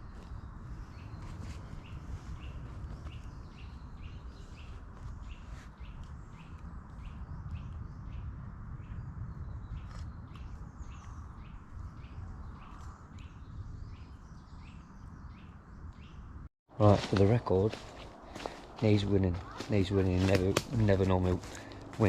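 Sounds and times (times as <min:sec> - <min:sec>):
steady low rumble: 0:16.4 - 0:22.0.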